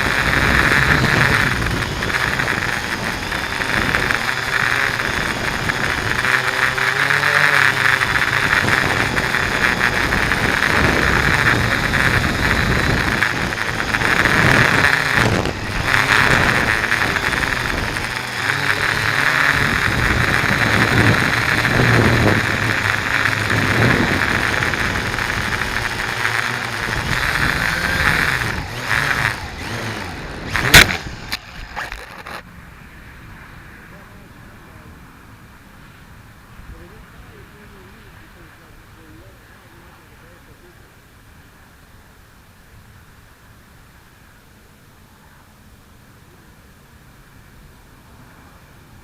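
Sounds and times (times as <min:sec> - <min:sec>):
wind buffeting: 0:00.0 - 0:31.8
drone propellers whirring: 0:00.0 - 0:40.7.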